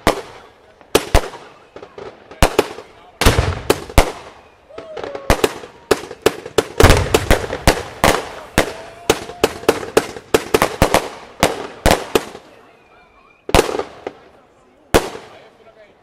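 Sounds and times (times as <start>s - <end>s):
firework cake bangs: 0.0s - 12.5s.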